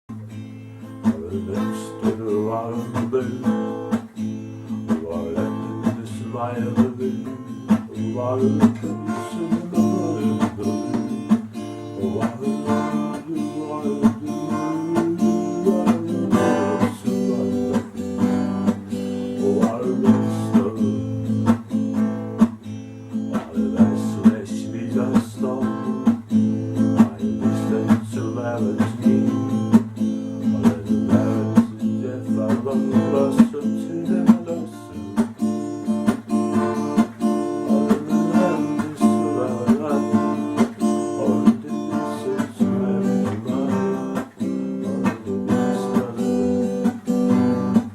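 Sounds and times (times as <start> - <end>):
acoustic guitar playing: 0.0 - 47.9.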